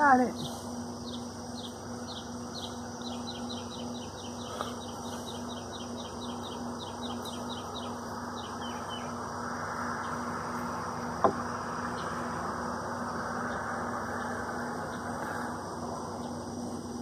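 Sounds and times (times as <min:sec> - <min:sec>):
faint steady hum: 0:00.0 - 0:17.0
bird chirping and trilling: 0:01.0 - 0:09.2.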